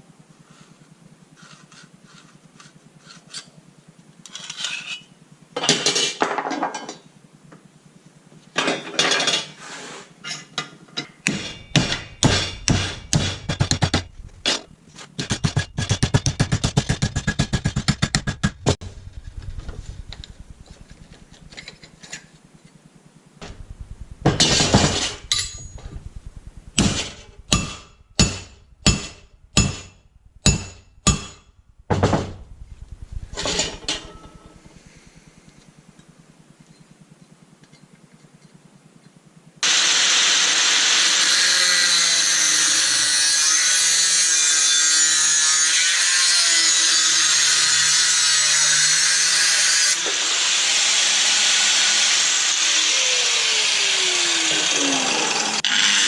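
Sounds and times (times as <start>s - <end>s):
hammer striking metal: 11.2s - 14.6s, 24.3s - 25.9s, 26.8s - 32.3s
power tool running on steel: 11.4s - 14.6s, 16.8s - 22.2s, 23.4s - 31.0s, 31.7s - 35.6s, 39.6s - 56.0s.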